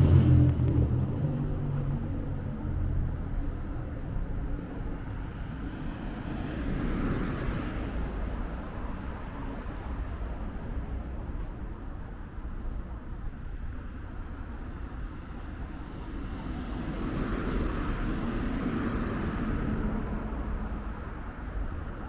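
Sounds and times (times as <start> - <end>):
vehicle passing by: 0.0 - 10.1
city traffic rumble: 0.0 - 22.0.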